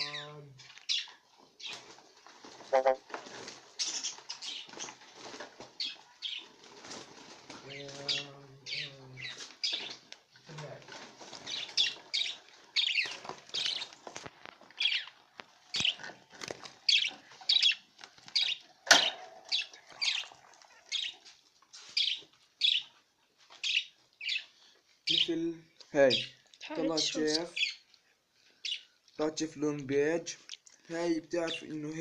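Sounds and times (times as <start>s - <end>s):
budgerigars chirping: 0.9s - 1.8s, 3.8s - 5.0s, 5.8s - 6.5s, 7.7s - 10.0s, 11.4s - 14.0s, 14.8s - 16.1s, 16.9s - 21.2s, 22.0s - 23.0s, 23.6s - 25.4s, 26.0s - 27.9s, 28.6s - 28.9s.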